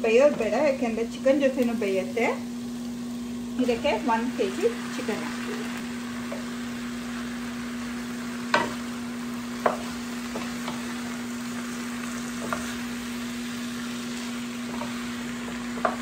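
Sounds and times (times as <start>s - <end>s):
chicken and onions sizzling in oil: 0.0s - 16.0s
steady low hum: 0.0s - 16.0s
spatula knocking against pan: 9.6s - 10.8s.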